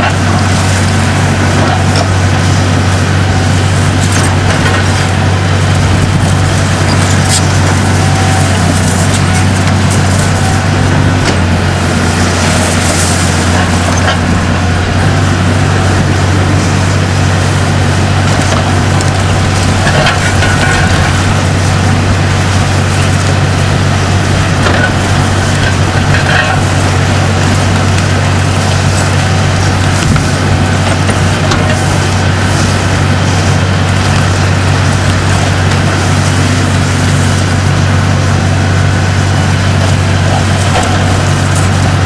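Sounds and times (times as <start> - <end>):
concrete cracking and crunching: 0.0 - 37.7
excavator diesel engine running: 0.0 - 42.0.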